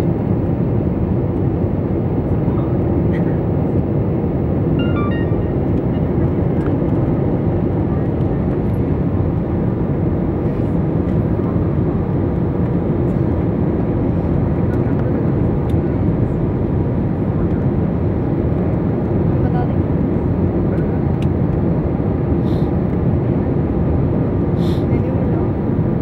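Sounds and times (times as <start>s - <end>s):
jet engine noise in cabin: 0.0s - 26.0s
brief high tones: 4.8s - 6.2s.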